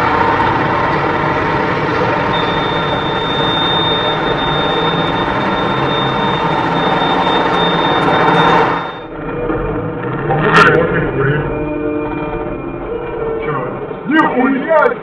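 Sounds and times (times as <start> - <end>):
faint high whine: 0.0 - 10.1
truck engine running: 0.0 - 14.8.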